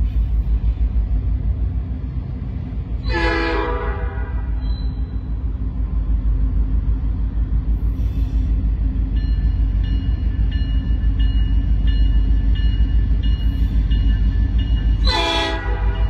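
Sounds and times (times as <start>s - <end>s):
train rumble: 0.0s - 16.0s
locomotive horn: 3.0s - 5.0s, 15.0s - 16.0s
railroad crossing bell ringing: 4.4s - 5.5s, 8.8s - 16.0s.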